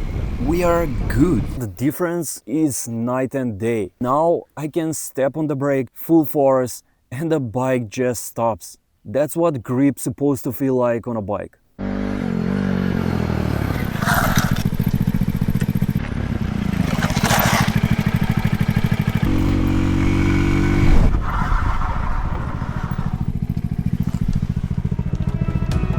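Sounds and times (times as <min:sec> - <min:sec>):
scooter engine running: 0:11.8 - 0:21.1, 0:22.1 - 0:25.9.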